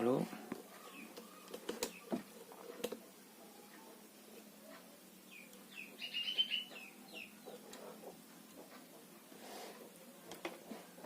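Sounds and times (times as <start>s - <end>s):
small bird chirping: 0.7s - 2.2s, 4.8s - 8.2s.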